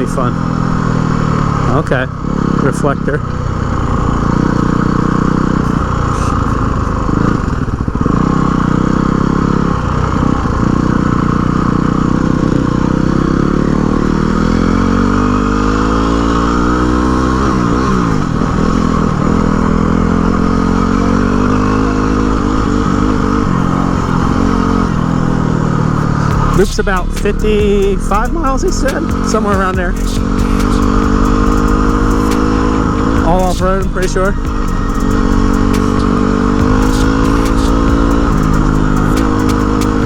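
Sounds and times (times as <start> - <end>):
motorcycle engine running: 0.0 - 40.0
second engine: 0.0 - 40.0.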